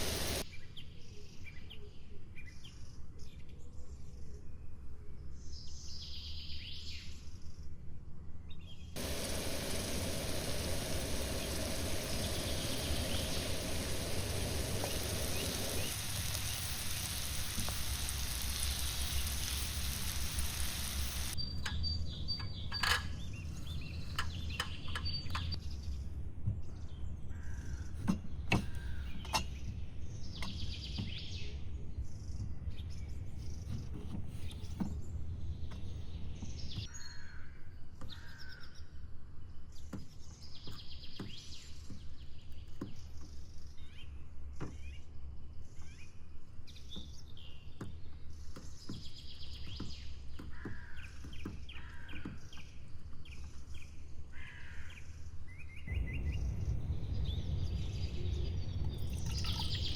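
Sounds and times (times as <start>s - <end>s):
forest birds singing: 8.4s - 59.9s
low rumble: 55.8s - 59.9s.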